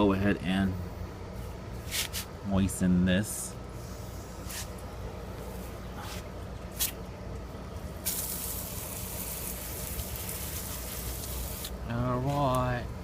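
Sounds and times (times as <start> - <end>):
water spray hissing: 8.0 - 11.8.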